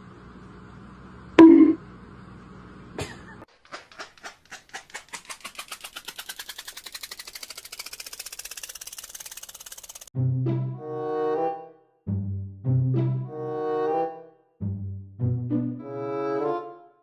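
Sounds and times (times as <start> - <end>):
sharp clicks speeding to a rattle: 3.6 - 10.1.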